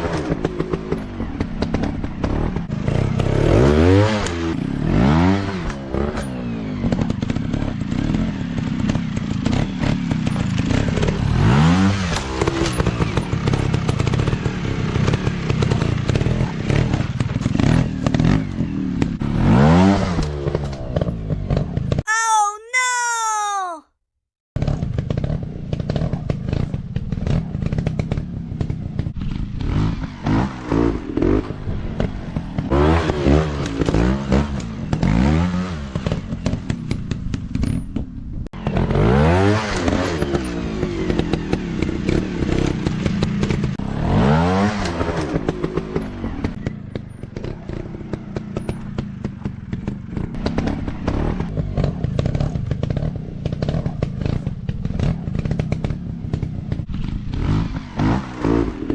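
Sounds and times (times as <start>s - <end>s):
clatter and scraping over rough ground: 5.6s - 11.4s, 44.8s - 58.9s.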